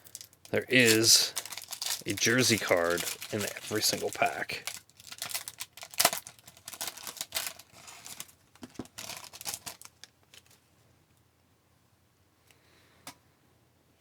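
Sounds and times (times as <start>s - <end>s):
wrapper tearing and crinkling: 0.0s - 10.6s.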